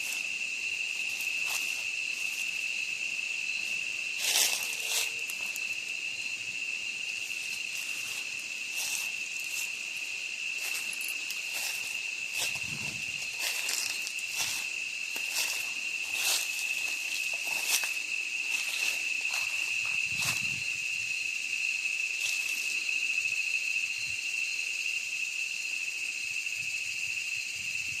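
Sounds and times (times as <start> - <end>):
footsteps crunching on forest floor: 0.0 - 20.8, 22.1 - 23.0
insects droning: 0.0 - 28.0.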